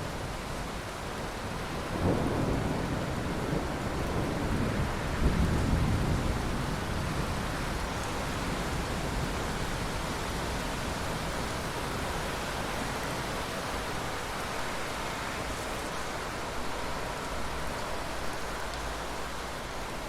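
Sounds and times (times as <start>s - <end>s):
heavy rain: 0.0s - 20.0s
rolling thunder: 1.8s - 10.6s.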